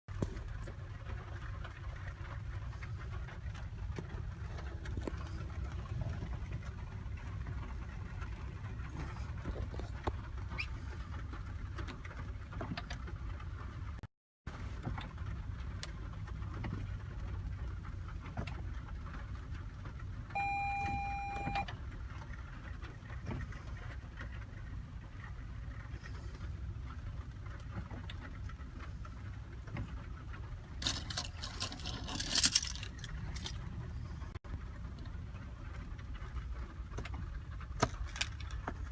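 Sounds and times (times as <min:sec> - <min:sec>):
low steady rumble: 0:00.1 - 0:38.9
electronic beep: 0:20.4 - 0:21.6
rattling clicks: 0:30.8 - 0:33.7.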